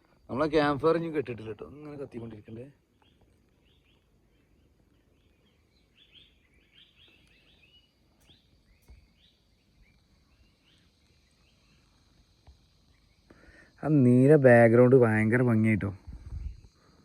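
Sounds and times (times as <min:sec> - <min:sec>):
faint bird chirping: 0:00.0 - 0:17.0.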